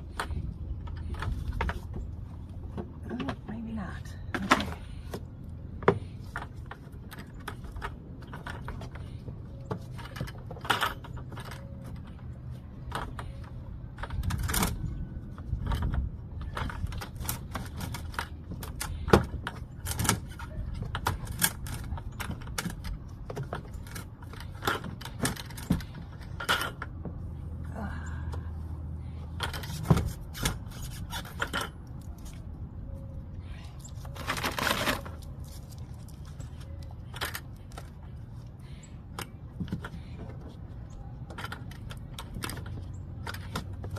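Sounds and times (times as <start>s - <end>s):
steady low rumble: 0.0s - 43.9s.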